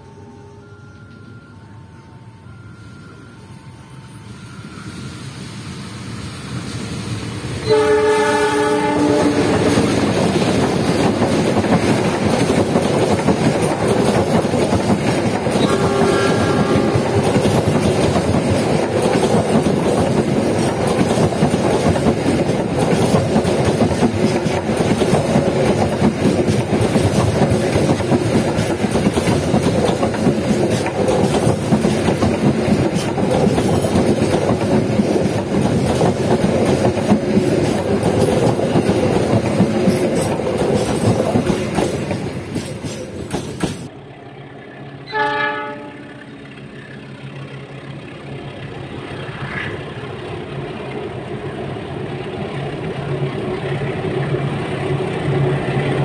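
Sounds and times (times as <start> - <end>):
train wheels rumbling and clattering: 5.8 - 56.0
locomotive horn: 7.6 - 9.8, 15.6 - 17.4, 45.0 - 46.5.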